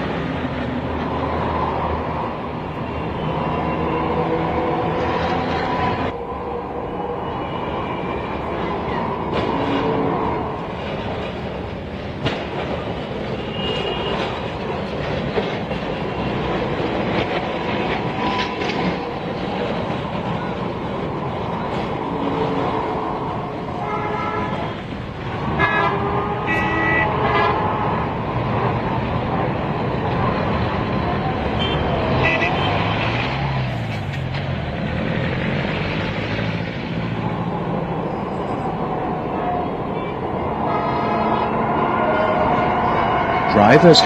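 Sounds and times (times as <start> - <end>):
street traffic: 0.0 - 44.0
tram running on rails: 0.0 - 44.0
horn toots: 25.4 - 28.1.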